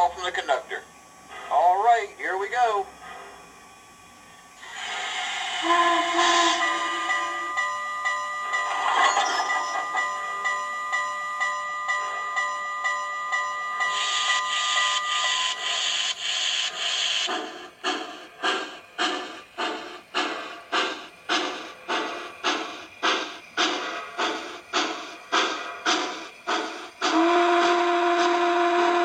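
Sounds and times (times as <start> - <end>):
steam locomotive chuffs: 0.0 - 29.0
bell ringing: 6.5 - 15.6.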